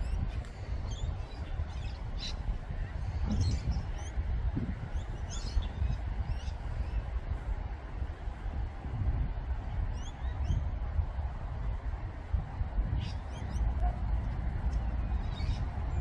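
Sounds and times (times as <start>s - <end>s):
continuous low rumble: 0.0s - 16.0s
small birds chirping: 14.7s - 16.0s.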